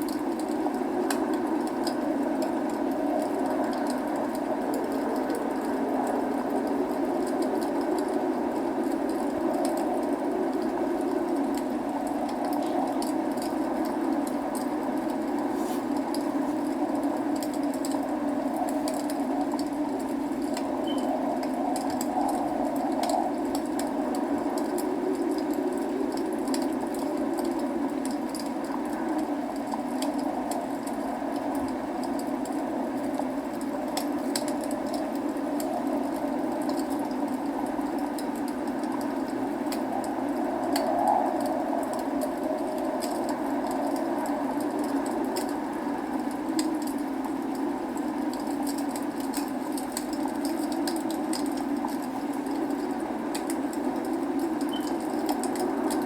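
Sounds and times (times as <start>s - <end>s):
log fire crackling: 0.0s - 56.0s
rain falling: 0.0s - 56.0s.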